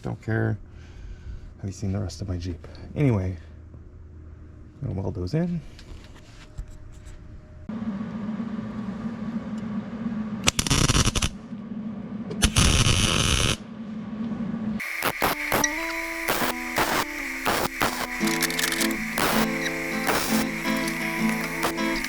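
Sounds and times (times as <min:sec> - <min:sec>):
welder hum: 0:14.8 - 0:22.0
welding arc bursts: 0:14.8 - 0:22.0.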